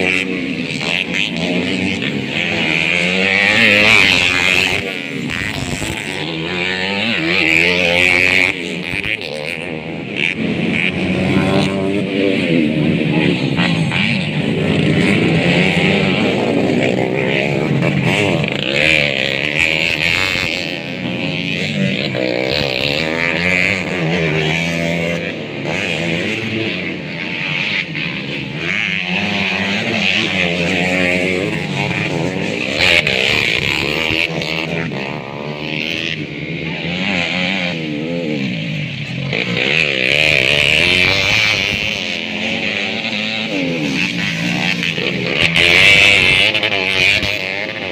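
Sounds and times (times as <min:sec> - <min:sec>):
motocross bike engines revving: 0:00.0 - 0:47.9.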